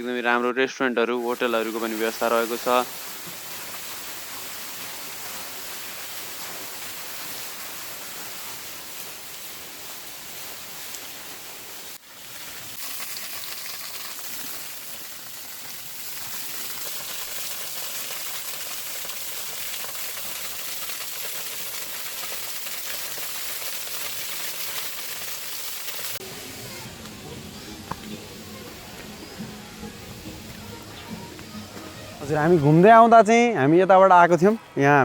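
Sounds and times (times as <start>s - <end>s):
waterfall rushing: 1.2s - 11.9s.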